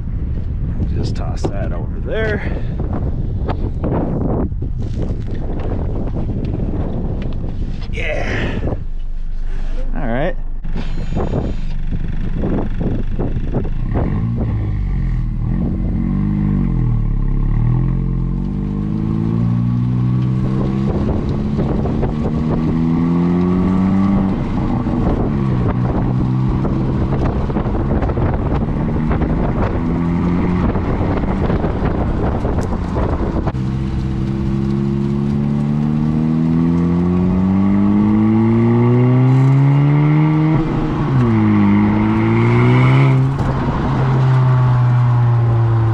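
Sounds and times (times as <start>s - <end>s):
car exhaust accelerating: 0.0s - 45.9s.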